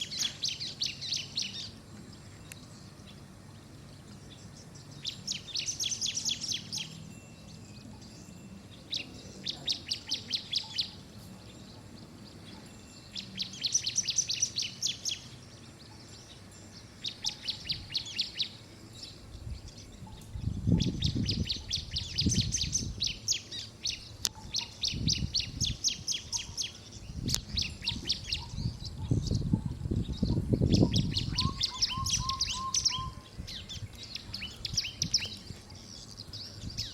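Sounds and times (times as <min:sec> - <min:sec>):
bird chirping rapidly: 0:19.4 - 0:36.9.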